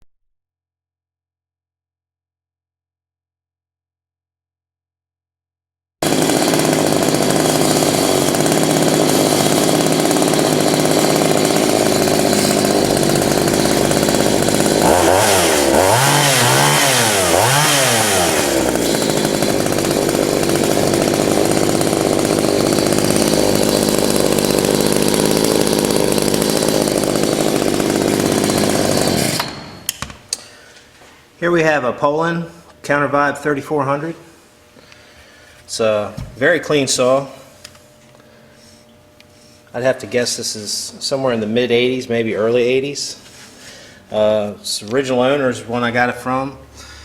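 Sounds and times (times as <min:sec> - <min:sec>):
chainsaw running and revving: 0:06.0 - 0:29.9.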